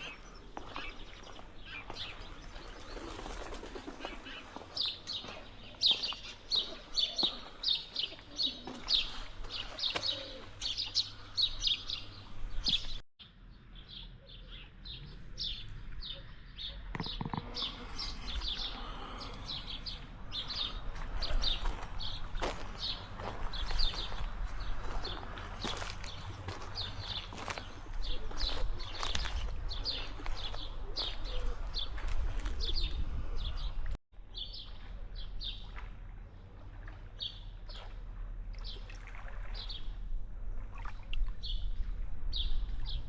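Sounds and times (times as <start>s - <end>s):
birds chirping: 0.0s - 35.8s.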